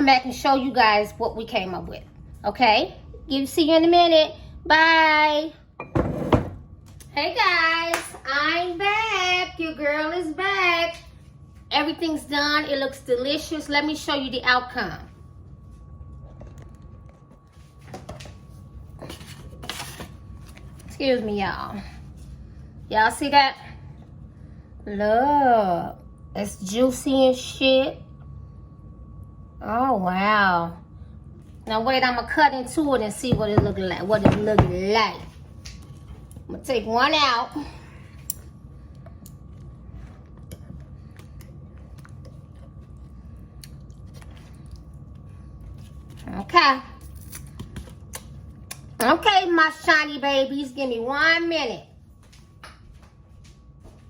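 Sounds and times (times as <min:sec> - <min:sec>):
faint steady whine: 0:00.0 - 0:54.0
low steady hum: 0:00.0 - 0:54.0.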